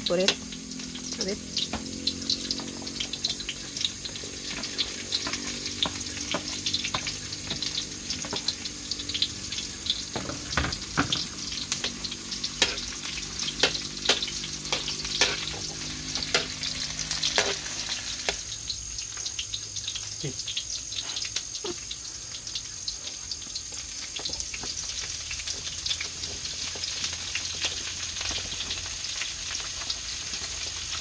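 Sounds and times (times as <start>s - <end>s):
onions sizzling in hot oil: 0.0s - 31.0s
spatula clicking and scraping pan: 4.0s - 8.8s, 9.8s - 18.5s.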